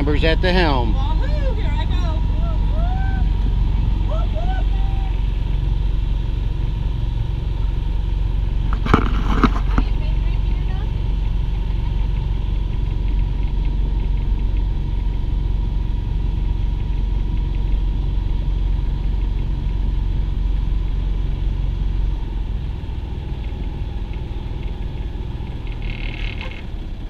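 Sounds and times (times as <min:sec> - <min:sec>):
boat engine low rumble: 0:00.0 - 0:27.0.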